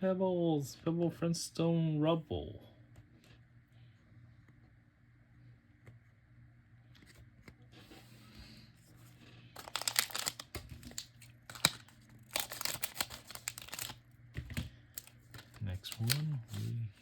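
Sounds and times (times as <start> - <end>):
foil wrapper tearing and crinkling: 9.6 - 14.0, 14.9 - 16.8.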